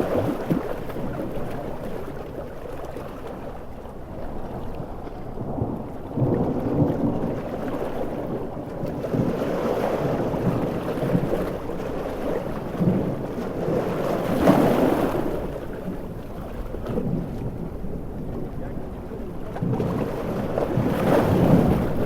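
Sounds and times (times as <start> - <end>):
big waves washing: 0.0 - 22.0
rolling thunder: 5.2 - 22.0
heavy rain: 5.4 - 9.4.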